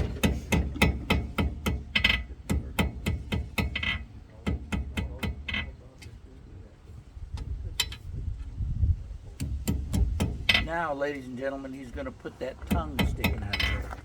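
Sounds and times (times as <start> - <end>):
hammer striking on anvil: 0.0 - 5.5.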